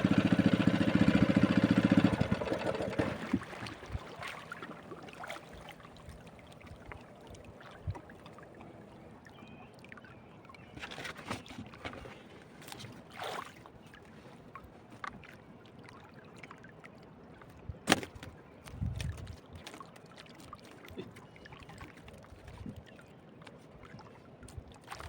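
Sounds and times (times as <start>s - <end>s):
water lapping against boat: 0.0s - 25.0s.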